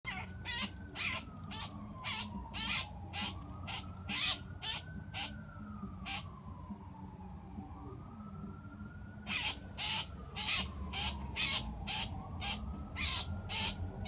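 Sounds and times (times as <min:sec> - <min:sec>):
blue jay screaming: 0:00.1 - 0:05.4, 0:06.0 - 0:06.2, 0:09.2 - 0:13.8
faint siren wailing: 0:00.1 - 0:14.0.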